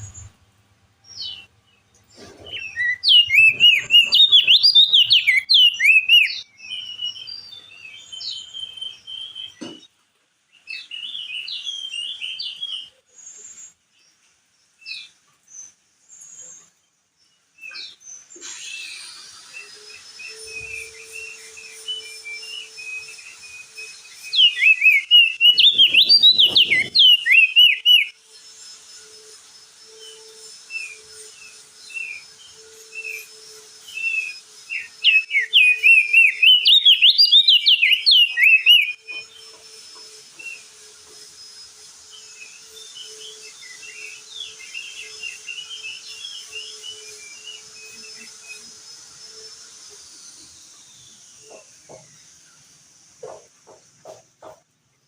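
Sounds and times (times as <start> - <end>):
bird chirps: 0.0 - 0.4, 1.0 - 9.9, 10.5 - 54.6
bird twittering song: 0.0 - 0.4, 1.0 - 9.9, 10.5 - 29.1, 29.9 - 40.7
steady high hiss: 0.0 - 1.4.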